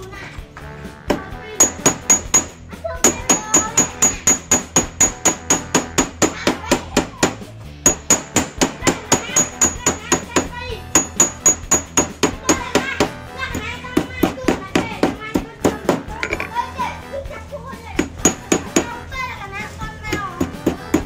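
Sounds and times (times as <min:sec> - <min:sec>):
hammer striking metal wire: 0:01.1 - 0:13.2, 0:18.0 - 0:18.9.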